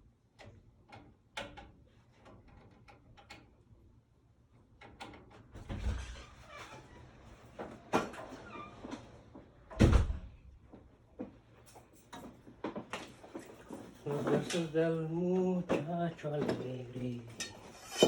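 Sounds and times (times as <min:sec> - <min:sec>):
tools clicking and clattering: 0:15.7 - 0:18.0.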